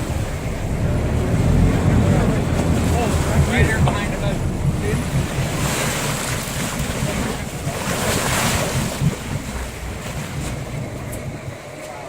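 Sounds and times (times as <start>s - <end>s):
sea water washing against boat: 0.0s - 12.0s
wind buffeting microphone: 0.0s - 12.0s.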